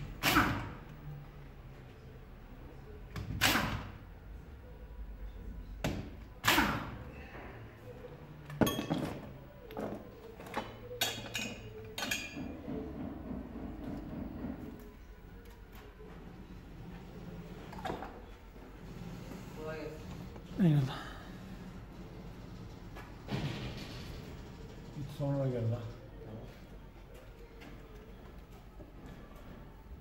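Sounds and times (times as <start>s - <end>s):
metallic knocks and clanks: 8.5s - 15.0s.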